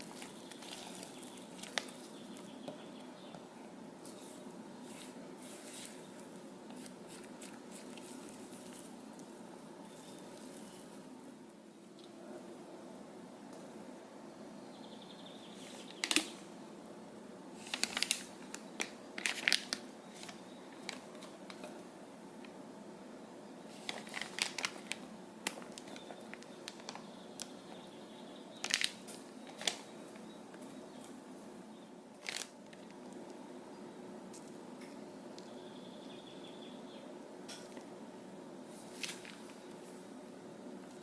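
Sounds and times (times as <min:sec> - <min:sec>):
plastic crinkling: 0:00.0 - 0:03.0, 0:04.0 - 0:09.3, 0:17.6 - 0:21.7, 0:23.7 - 0:27.6, 0:28.6 - 0:30.2, 0:32.2 - 0:33.2, 0:38.8 - 0:39.9
faint steady hum: 0:00.0 - 0:41.0.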